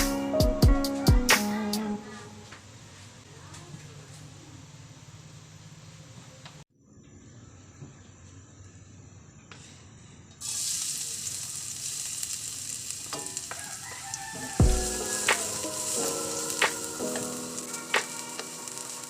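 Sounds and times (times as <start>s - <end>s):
food sizzling in hot oil: 10.4s - 19.0s.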